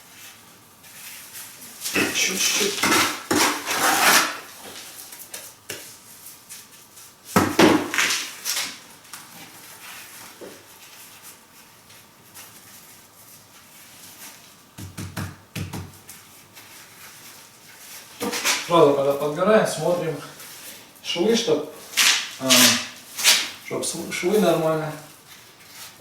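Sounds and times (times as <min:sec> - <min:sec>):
stone and mortar scraping: 0:02.0 - 0:04.5.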